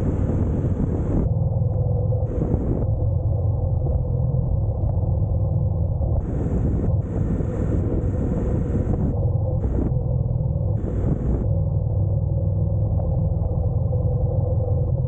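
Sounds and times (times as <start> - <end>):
motorcycle engine rumbling: 0.0 - 4.1.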